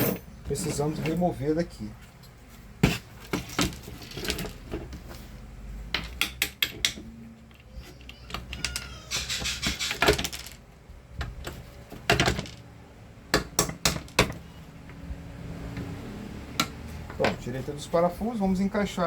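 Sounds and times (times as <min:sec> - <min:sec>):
screwdriver and screws clinking: 0:00.0 - 0:00.2
rattling and scraping: 0:00.0 - 0:01.3, 0:02.8 - 0:05.3.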